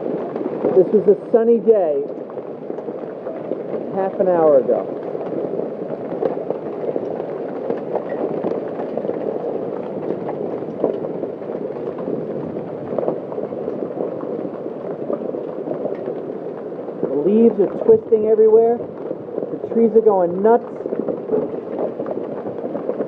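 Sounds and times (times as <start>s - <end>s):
hailstones pelting down: 0.0s - 23.0s.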